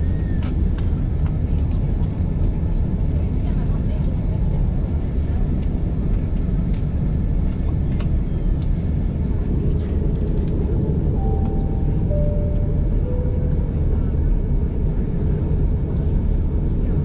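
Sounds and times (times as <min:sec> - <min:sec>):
airliner cabin rumble: 0:00.0 - 0:17.0
three-note descending chime: 0:11.2 - 0:14.1.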